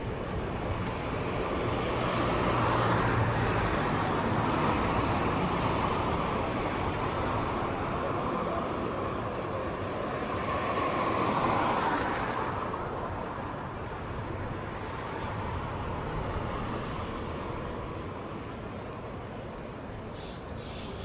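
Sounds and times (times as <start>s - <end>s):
street noise: 0.0s - 21.0s.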